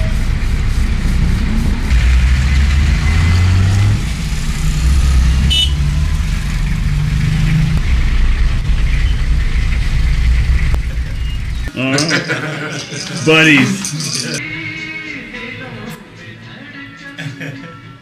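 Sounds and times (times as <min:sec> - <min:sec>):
vehicle engine droning: 0:00.0 - 0:11.7.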